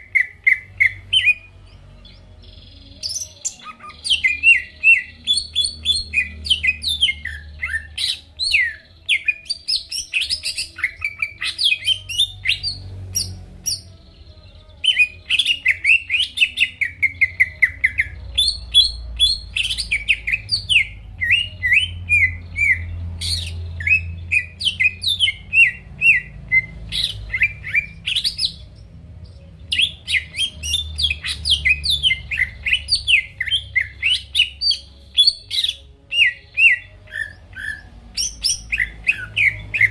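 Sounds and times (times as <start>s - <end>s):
bird singing chirps and whistles: 0.0s - 39.9s.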